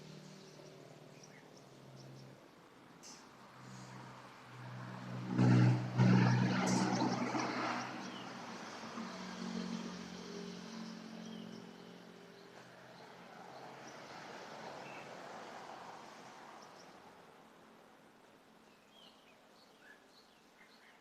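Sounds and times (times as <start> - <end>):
vehicle passing by: 3.0 - 17.3.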